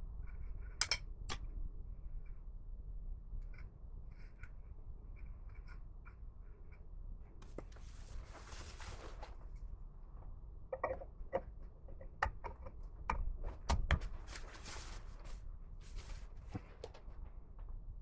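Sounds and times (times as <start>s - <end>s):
tools clicking and knocking: 0.8s - 1.4s
rubbing and brushing noises: 7.4s - 9.6s, 14.1s - 17.2s.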